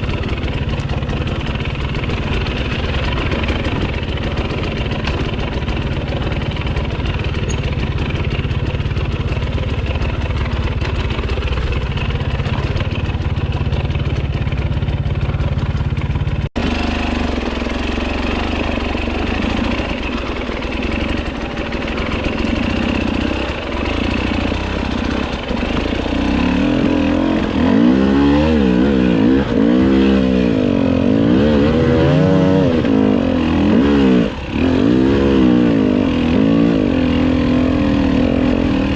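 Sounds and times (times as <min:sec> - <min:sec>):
dirt bike engine revving: 0:16.6 - 0:38.9.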